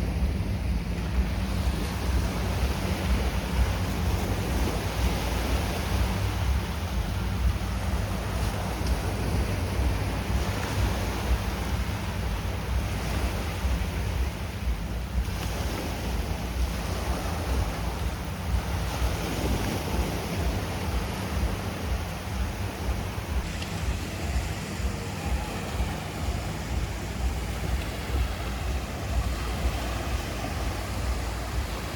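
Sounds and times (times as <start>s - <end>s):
sea surf washing on beach: 0.0s - 31.9s
wind buffeting microphone: 0.0s - 31.9s.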